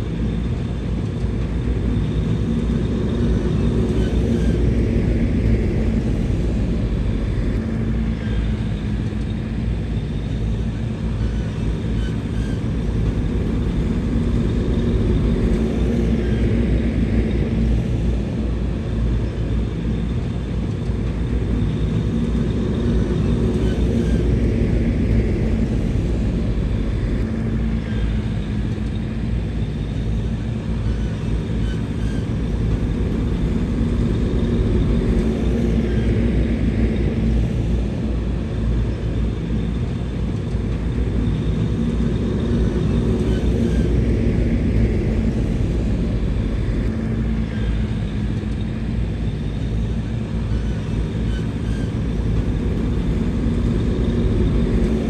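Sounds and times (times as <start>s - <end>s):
heavy diesel engine rumbling: 0.0s - 55.0s.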